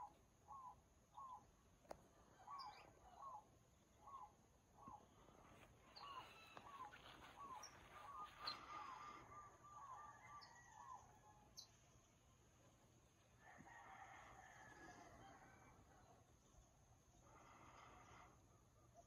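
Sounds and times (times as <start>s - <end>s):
faint arching bird call: 6.0s - 11.0s.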